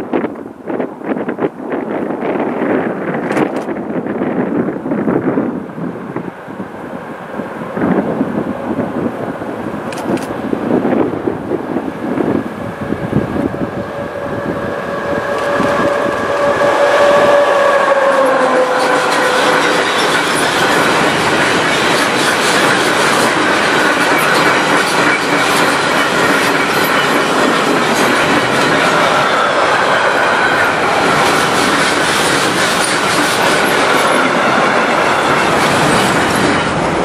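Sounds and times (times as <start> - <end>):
electric locomotive humming: 0.0 - 37.0
wagon wheels clacking on rail joints: 18.2 - 37.0.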